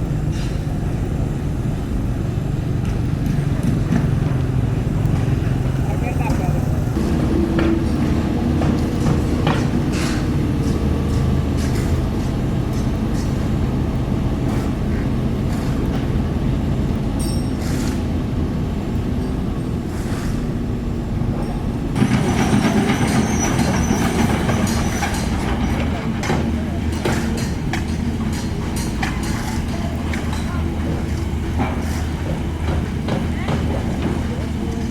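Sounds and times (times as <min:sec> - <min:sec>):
diesel machinery running: 0:00.0 - 0:34.9
high grinding squeal: 0:22.0 - 0:26.2.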